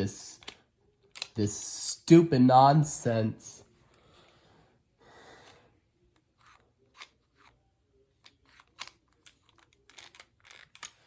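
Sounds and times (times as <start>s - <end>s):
light clicks of toy parts: 0.2s - 1.6s, 8.2s - 11.0s
soft rustle of toy parts: 5.4s - 11.0s.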